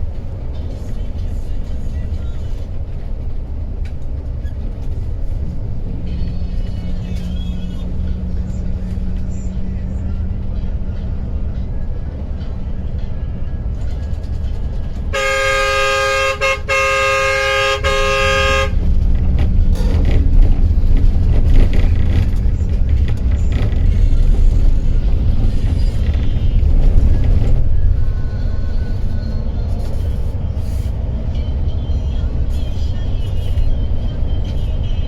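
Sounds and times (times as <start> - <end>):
bus engine and road noise: 0.0 - 35.0
loud two-tone vehicle horn: 15.0 - 19.0.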